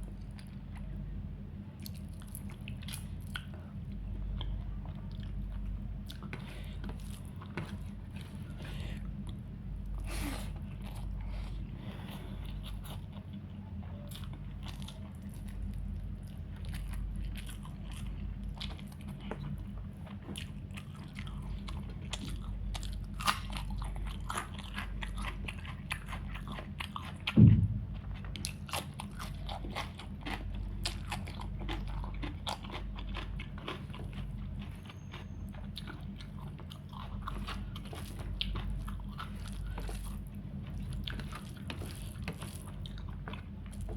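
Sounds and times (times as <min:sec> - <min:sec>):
steady low hum: 0:00.0 - 0:43.9
crunching bites and chewing: 0:04.3 - 0:43.9
low thump: 0:27.4 - 0:28.4.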